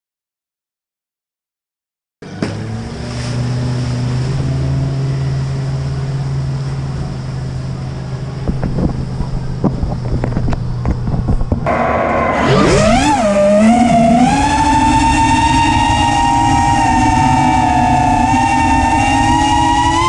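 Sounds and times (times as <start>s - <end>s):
wind buffeting microphone: 5.1s - 12.1s
drone motors buzzing: 8.4s - 20.0s.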